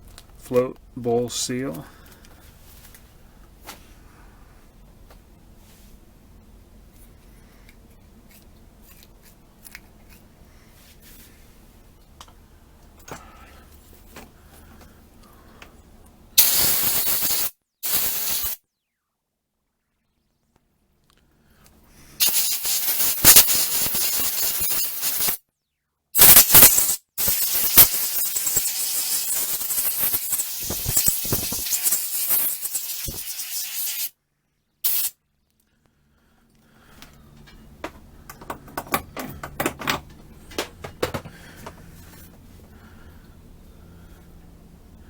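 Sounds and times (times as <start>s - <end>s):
clicks of small parts handled: 7.7s - 10.3s
pressurized spray hissing: 16.4s - 18.6s, 22.2s - 25.4s, 26.2s - 34.1s, 34.9s - 35.1s.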